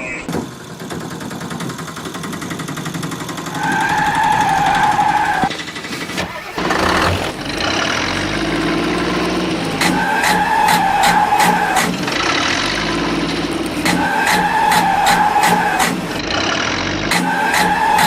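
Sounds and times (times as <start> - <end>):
vehicle engine running unevenly: 0.3 - 18.0
sharp clicks: 4.4 - 16.5, 17.1 - 18.0.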